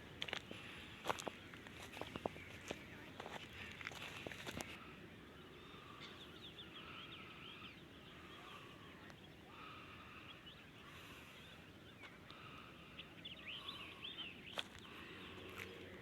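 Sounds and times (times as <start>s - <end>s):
birds chirping: 0.0s - 16.0s
footsteps crunching: 0.2s - 4.8s, 14.5s - 15.9s.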